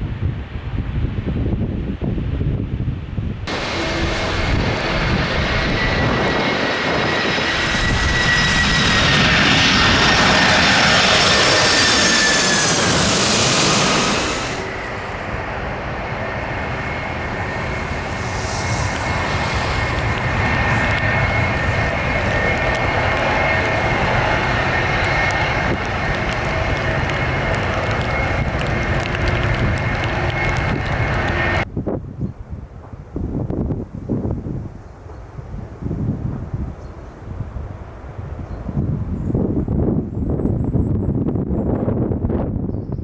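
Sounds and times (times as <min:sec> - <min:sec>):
jet engine whine: 0:00.4 - 0:31.7
engine rumble: 0:03.5 - 0:31.7.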